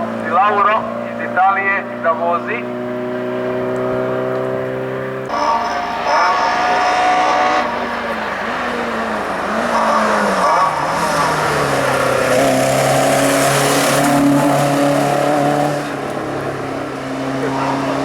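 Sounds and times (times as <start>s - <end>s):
race car engine accelerating: 0.0s - 18.0s.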